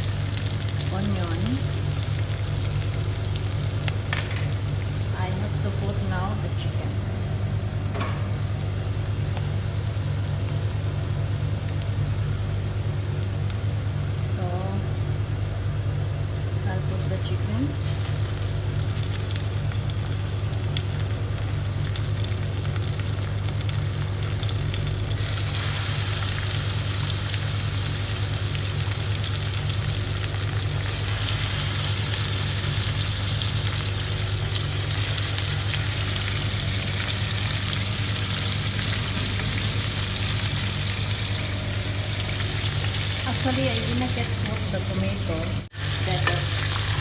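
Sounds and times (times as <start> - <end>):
chicken sizzling in hot oil: 0.0 - 6.7, 7.8 - 47.0
low hum: 0.0 - 20.1, 29.9 - 46.7.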